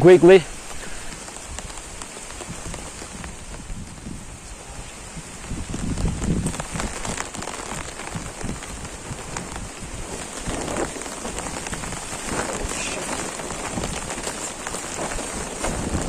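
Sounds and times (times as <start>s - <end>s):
rain falling: 0.0s - 16.0s
raindrops ticking: 0.0s - 16.0s.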